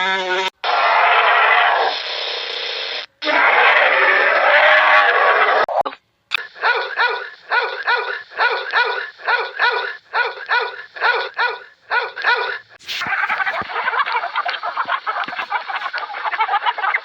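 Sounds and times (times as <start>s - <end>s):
dog barking: 6.4s - 16.0s.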